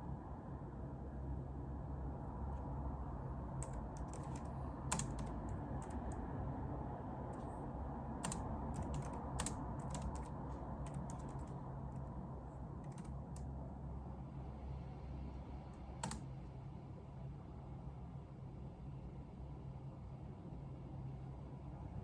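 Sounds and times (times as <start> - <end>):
low room hum: 0.0 - 22.0
keyboard key clicks: 3.6 - 6.2, 8.2 - 10.3, 10.9 - 12.1, 12.8 - 13.5.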